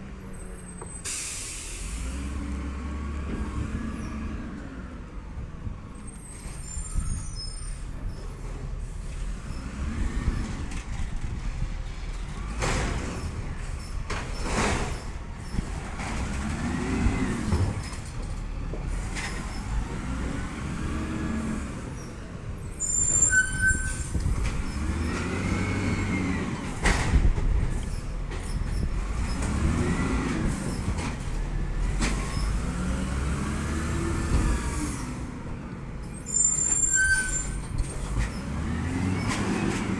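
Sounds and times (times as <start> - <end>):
brief high squeal: 6.2 - 8.2, 22.7 - 24.2, 36.2 - 37.8
garbage truck engine revving: 24.4 - 26.9, 28.9 - 35.3.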